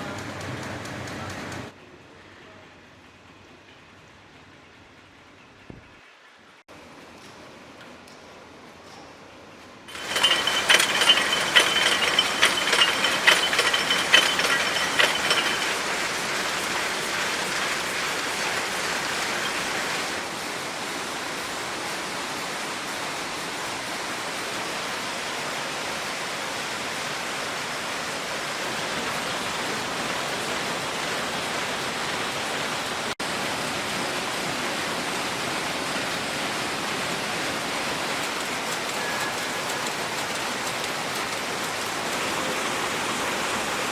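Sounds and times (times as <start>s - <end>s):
factory machinery din: 9.9s - 20.1s
rapid mechanical clicking: 9.9s - 20.2s, 38.2s - 42.3s.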